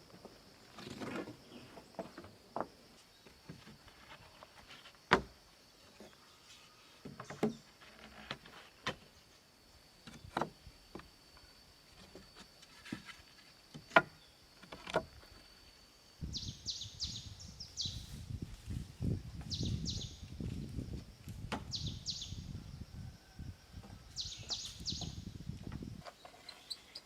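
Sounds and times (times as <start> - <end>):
birds chirping: 16.2 - 18.1, 19.5 - 20.3, 21.7 - 22.5, 24.1 - 25.3.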